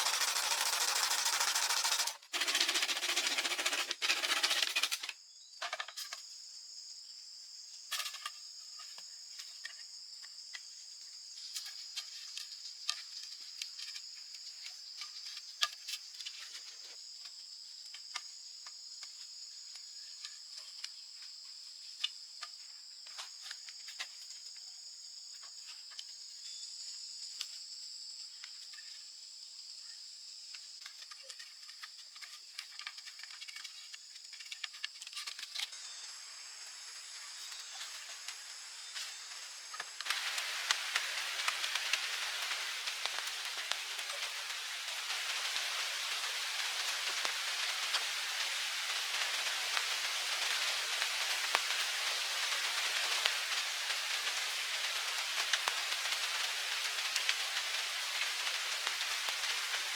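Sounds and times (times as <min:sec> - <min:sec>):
insects trilling: 0:00.0 - 0:59.9
light clicks and rustles: 0:30.5 - 0:35.8.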